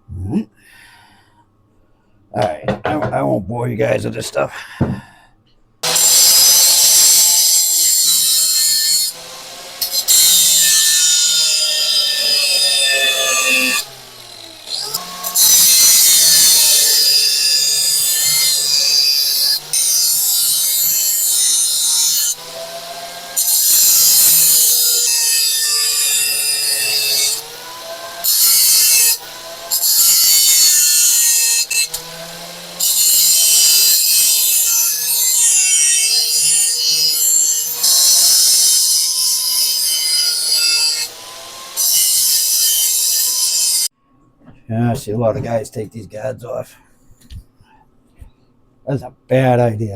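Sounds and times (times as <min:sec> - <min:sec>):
angle grinder grinding steel: 0:05.8 - 0:43.9.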